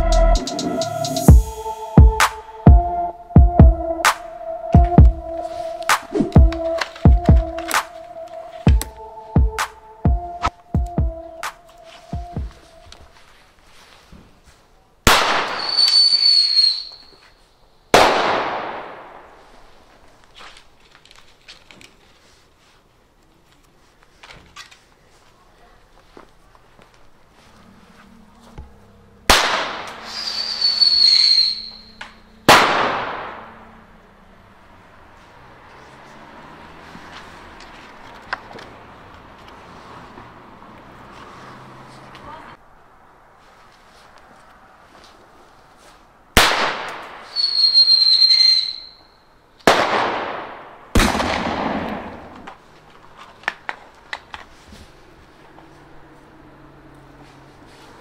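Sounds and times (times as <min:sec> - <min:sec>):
high steady whistle: 0:00.0 - 0:13.0, 0:15.6 - 0:17.3, 0:30.0 - 0:32.2, 0:47.3 - 0:49.3
pistol launch shot: 0:15.1 - 0:16.0, 0:17.9 - 0:19.2, 0:29.3 - 0:30.2, 0:32.5 - 0:33.5, 0:46.4 - 0:47.4, 0:49.6 - 0:52.4
high pyrotechnic whistle: 0:15.4 - 0:17.3, 0:30.0 - 0:32.2, 0:47.3 - 0:49.3
loud bang echoing: 0:32.5 - 0:33.6, 0:49.7 - 0:52.4.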